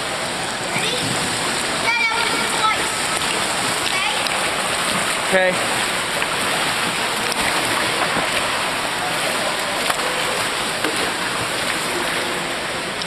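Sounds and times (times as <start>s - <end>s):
rushing splashing water: 0.0s - 13.0s.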